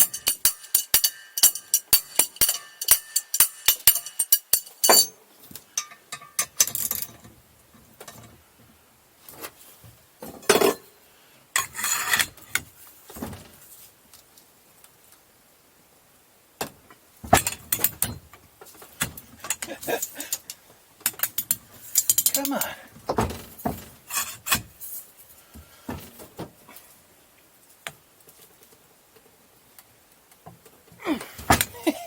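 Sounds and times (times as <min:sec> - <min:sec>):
metal tools clinking and rattling: 0:00.0 - 0:07.3, 0:19.3 - 0:22.8.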